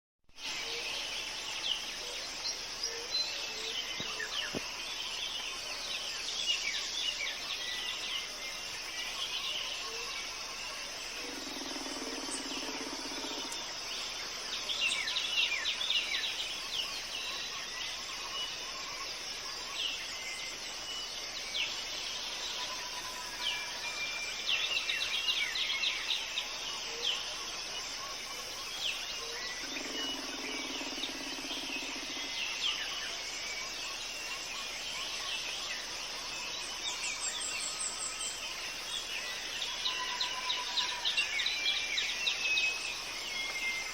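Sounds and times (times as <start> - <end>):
insects droning: 0.4 - 43.9
wild birds chirping: 0.4 - 43.9.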